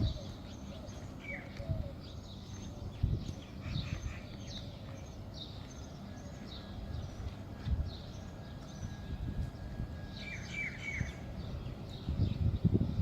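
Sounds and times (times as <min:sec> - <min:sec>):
low outdoor rumble: 0:00.0 - 0:13.0
small birds chirping: 0:00.0 - 0:13.0.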